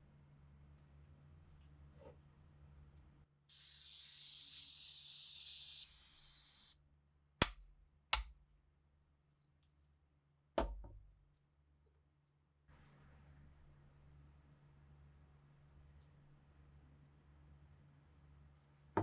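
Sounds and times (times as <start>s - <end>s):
spray hissing: 3.5s - 6.8s.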